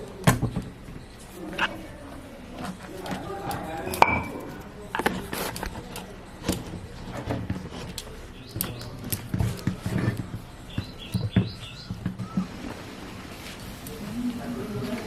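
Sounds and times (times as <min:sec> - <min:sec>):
cooking pot and lid clinking: 0:03.8 - 0:04.6
bird chirping: 0:08.1 - 0:09.3, 0:10.0 - 0:12.5.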